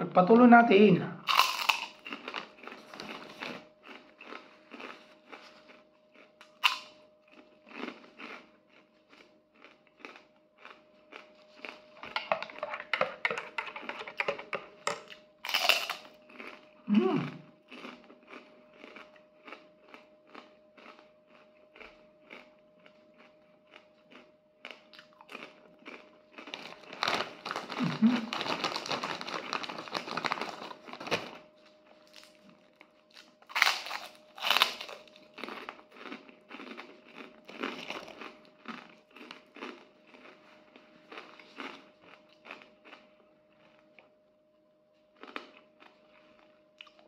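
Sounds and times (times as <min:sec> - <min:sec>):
faint steady hum: 0:00.0 - 0:47.0
crunchy crackers being chewed: 0:01.2 - 0:44.2, 0:45.0 - 0:47.0
plastic bag crinkling: 0:01.3 - 0:05.3, 0:26.4 - 0:32.4.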